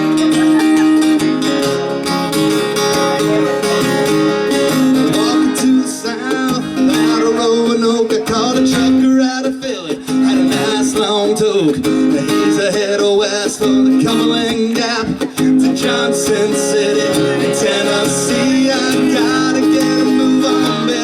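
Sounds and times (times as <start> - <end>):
held melody notes: 0.0 - 9.1
strummed acoustic guitar: 0.0 - 21.0.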